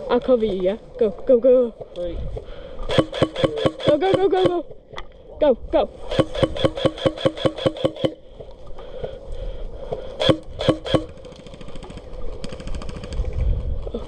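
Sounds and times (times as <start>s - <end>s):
faint rapid gunfire burst: 2.9s - 4.5s, 6.1s - 8.2s, 10.2s - 13.2s
airsoft gun firing: 2.9s - 4.6s, 6.1s - 8.2s, 10.2s - 13.1s.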